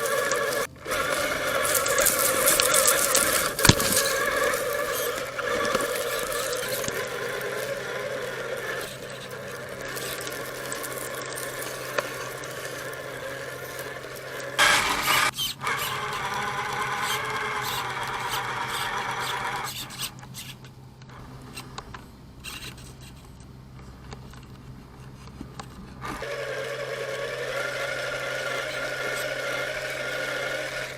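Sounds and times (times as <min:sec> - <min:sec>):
tyres crunching on dirt: 0:00.0 - 0:15.3
electric motor whining: 0:00.0 - 0:23.2, 0:25.3 - 0:30.9.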